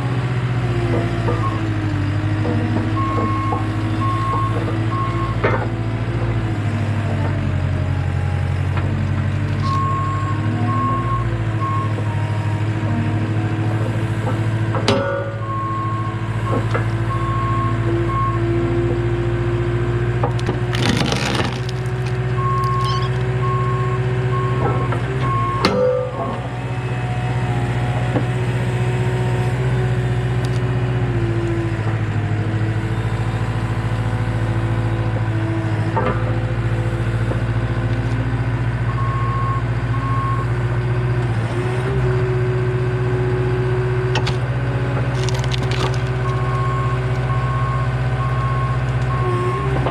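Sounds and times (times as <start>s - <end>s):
skid steer engine running: 0.0s - 49.9s
wood cracking and splitting: 20.2s - 23.3s, 44.2s - 47.5s
beeping alarm: 22.4s - 26.8s.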